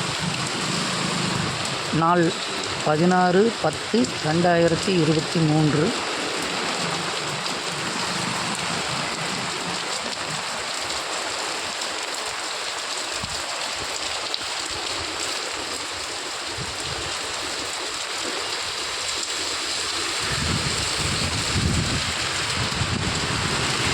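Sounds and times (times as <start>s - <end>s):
heavy rain falling: 0.0s - 23.9s.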